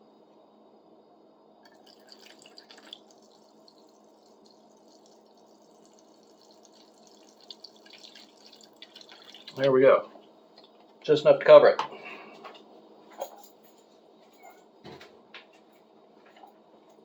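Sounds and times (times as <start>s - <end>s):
low steady hum: 0.0s - 17.0s
liquid trickling into bucket: 1.7s - 9.8s.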